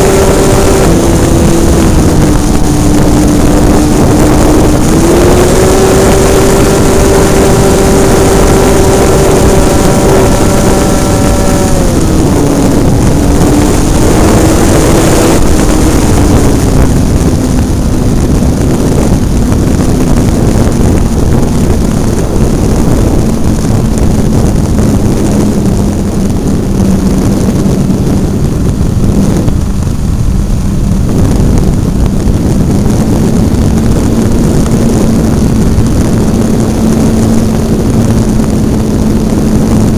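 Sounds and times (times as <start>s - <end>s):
wind rush over microphone: 0.0s - 39.9s.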